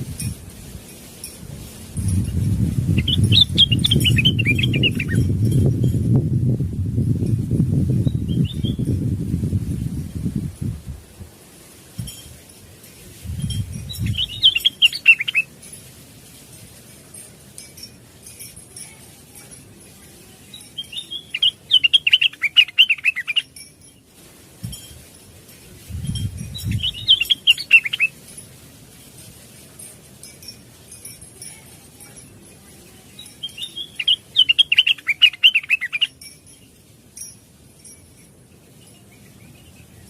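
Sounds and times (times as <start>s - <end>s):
bird warbling: 2.3s - 5.4s, 13.8s - 15.5s, 20.5s - 23.5s, 26.5s - 28.2s, 33.2s - 36.2s.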